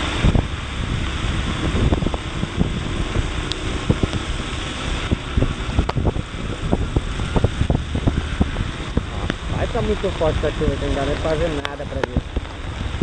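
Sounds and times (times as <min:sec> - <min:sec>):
raindrops ticking on microphone: 0:00.0 - 0:13.0
wind and rain rushing: 0:00.0 - 0:13.0.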